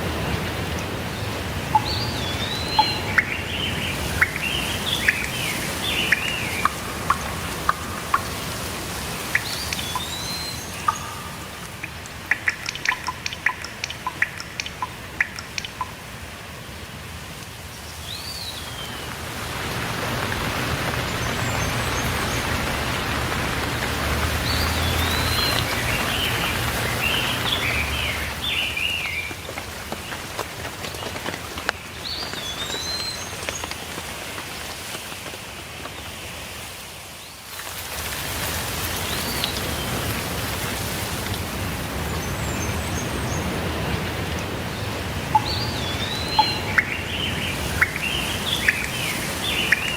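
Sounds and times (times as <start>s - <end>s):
sharp drips: 0.0s - 16.6s, 17.3s - 34.9s, 37.5s - 49.9s
steady rain hiss: 0.0s - 49.9s
birds chirping: 0.2s - 16.0s, 19.8s - 30.3s, 42.0s - 49.9s.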